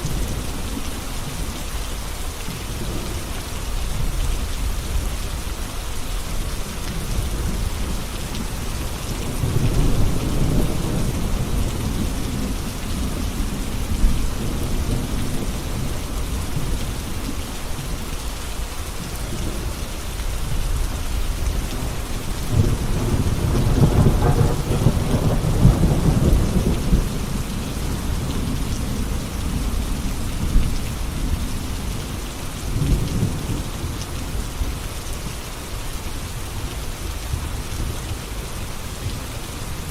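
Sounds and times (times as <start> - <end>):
steady rain falling: 0.0 - 39.9
rolling thunder: 7.3 - 17.2, 21.5 - 33.8.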